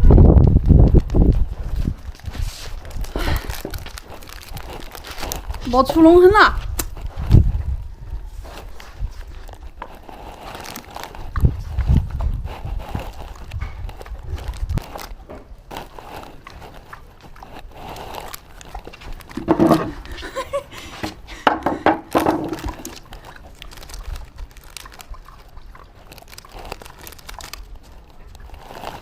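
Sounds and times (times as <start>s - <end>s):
light crunching and rustling: 0.1s - 29.0s.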